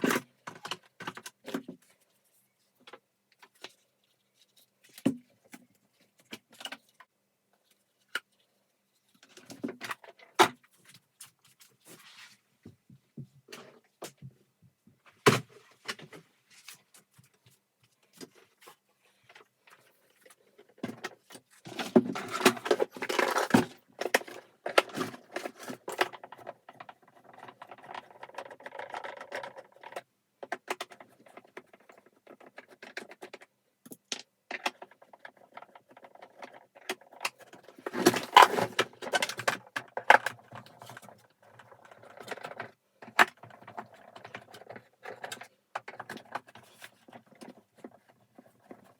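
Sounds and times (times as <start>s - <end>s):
plastic parts clicking and clattering: 0.0s - 2.0s, 15.1s - 48.9s.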